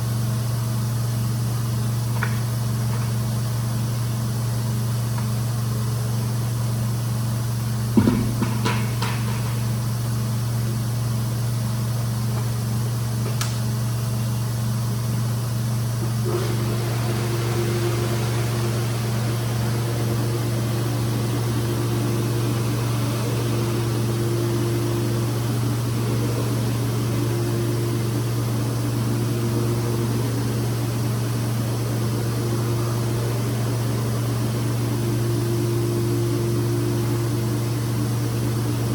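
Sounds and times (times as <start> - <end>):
knock: 8.0 - 9.3
rug-cleaning machine humming: 14.0 - 38.9.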